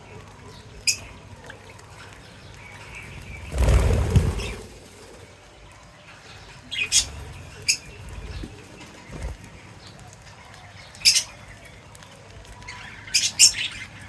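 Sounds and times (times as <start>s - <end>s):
bird wings flapping: 2.9s - 5.4s, 8.1s - 9.5s.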